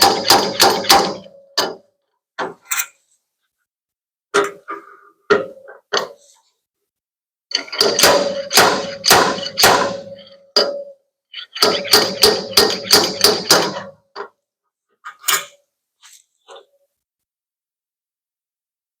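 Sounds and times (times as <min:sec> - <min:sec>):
hammer striking sheet metal: 0:00.0 - 0:02.6, 0:07.5 - 0:14.0.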